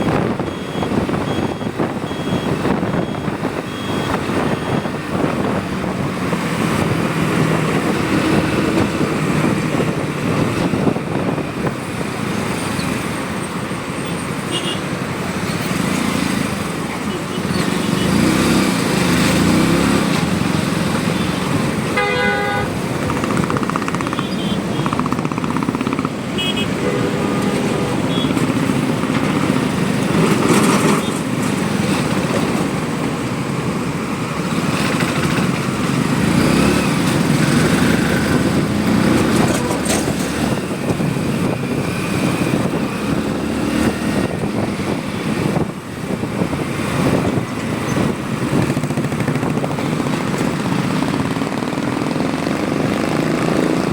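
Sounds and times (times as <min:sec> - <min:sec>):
motorcycle engine and road noise: 0:00.0 - 0:53.9
vehicle horn: 0:14.5 - 0:14.9, 0:21.2 - 0:22.8, 0:24.1 - 0:25.0, 0:26.4 - 0:28.4.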